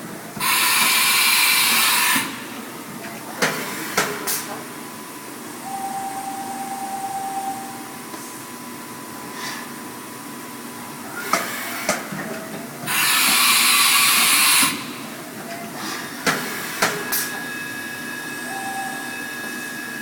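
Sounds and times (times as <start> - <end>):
faint machine hum: 2.3 - 16.4
machine whine: 17.1 - 20.0.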